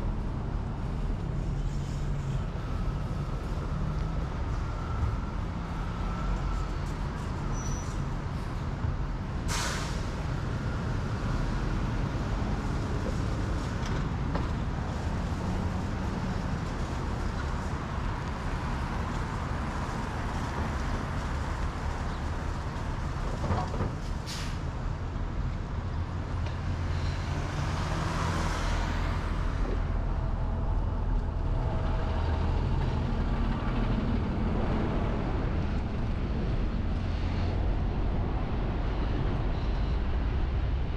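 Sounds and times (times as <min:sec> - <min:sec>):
road traffic rumble: 0:00.0 - 0:40.9
short sharp hisses: 0:09.5 - 0:10.1
vehicle passing: 0:26.6 - 0:30.6.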